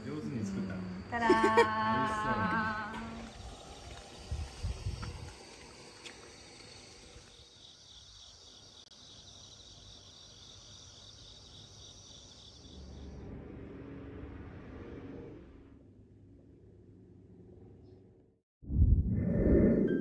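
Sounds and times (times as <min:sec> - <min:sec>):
crickets trilling: 0:00.0 - 0:14.1
fast pulsed cricket chirp: 0:00.0 - 0:15.9.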